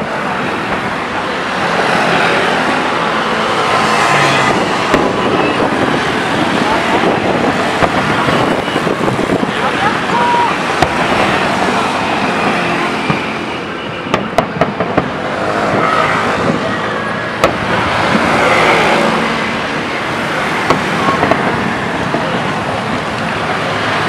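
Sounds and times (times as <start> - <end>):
crowd chatter: 0.0 - 24.0
fireworks cracking: 3.6 - 12.0, 14.1 - 16.6, 17.3 - 18.9, 20.3 - 23.7.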